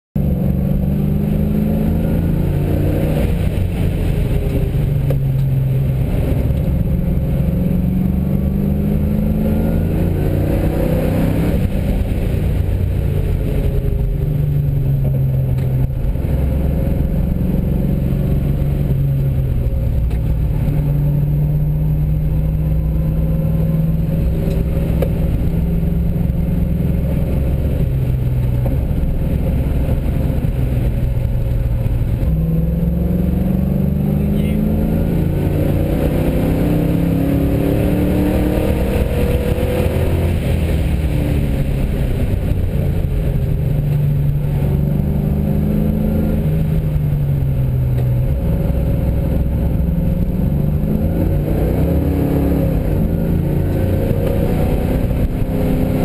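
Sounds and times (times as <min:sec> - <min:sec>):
car engine revving: 0:00.2 - 0:56.0.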